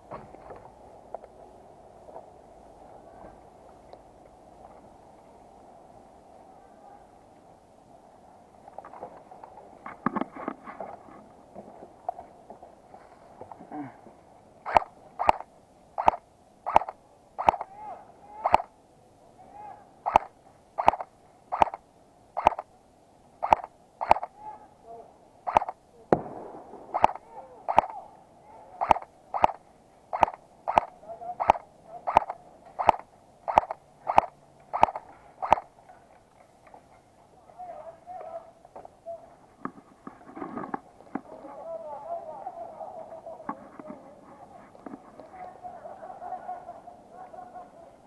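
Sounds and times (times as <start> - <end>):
airsoft gun shots: 14.6 - 17.7, 20.1 - 21.8, 23.4 - 24.3, 25.5 - 28.0, 28.8 - 35.7.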